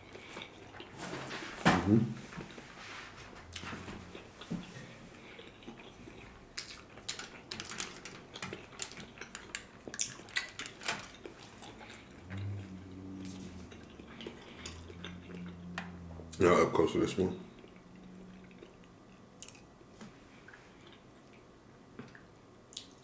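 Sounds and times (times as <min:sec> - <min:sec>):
low steady hum: 0:00.0 - 0:23.0
person chewing food: 0:03.5 - 0:16.1, 0:17.5 - 0:23.0.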